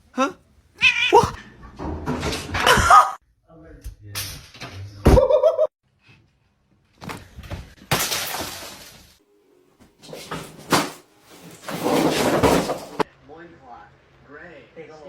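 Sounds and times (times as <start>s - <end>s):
crashing of something breaking: 7.8s - 9.2s, 10.3s - 13.1s.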